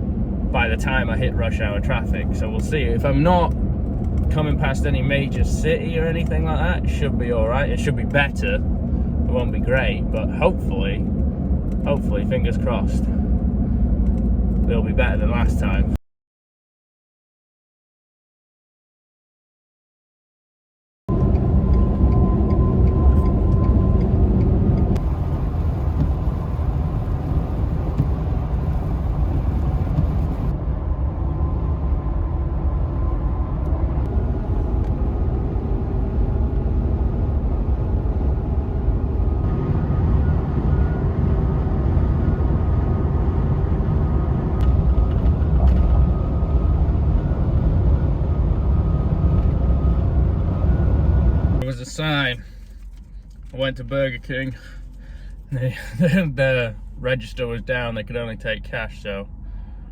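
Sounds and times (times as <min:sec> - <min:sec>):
pickup truck driving: 0:21.1 - 0:59.8.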